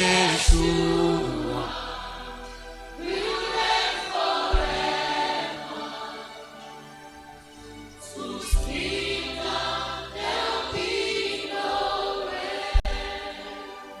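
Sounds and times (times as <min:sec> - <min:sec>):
sharp low thumps: 0:00.0 - 0:01.3, 0:04.5 - 0:05.0, 0:12.8 - 0:13.2
congregation singing: 0:00.0 - 0:14.0
instrumental backing with bass: 0:00.0 - 0:14.0.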